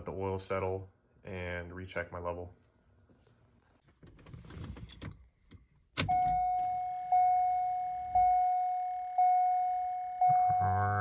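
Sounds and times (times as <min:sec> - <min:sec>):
car dashboard warning chime: 0:06.0 - 0:10.8.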